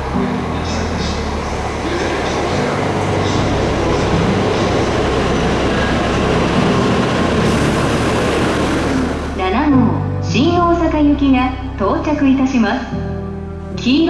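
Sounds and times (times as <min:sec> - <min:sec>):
train rushing past: 0:00.0 - 0:10.5.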